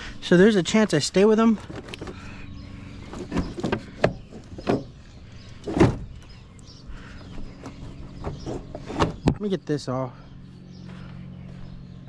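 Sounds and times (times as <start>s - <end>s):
steady low hum: 0.0s - 12.0s
parts knocking and clattering: 1.4s - 2.2s, 3.1s - 6.4s.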